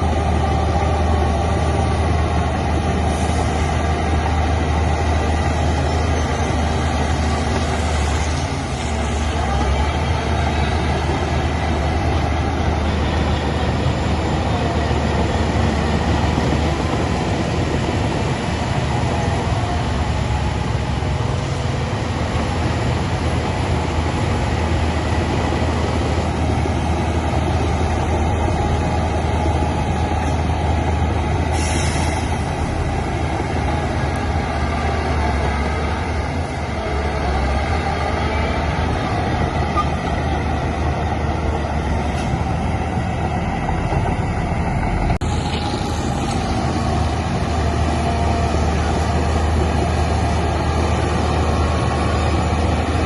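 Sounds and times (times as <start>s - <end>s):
diesel engine rumble: 0.0s - 53.0s
brief hiss: 31.5s - 32.5s.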